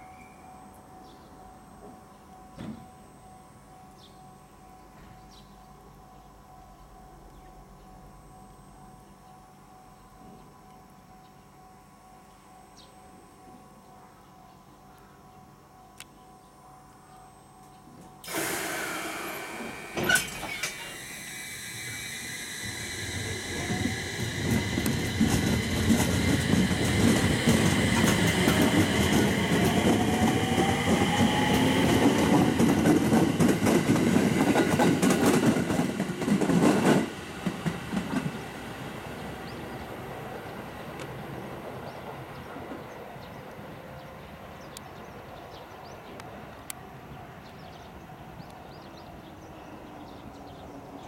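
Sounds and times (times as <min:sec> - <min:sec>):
train motor whine: 0:17.4 - 0:41.7
train wheels clattering over joints: 0:23.1 - 0:38.4.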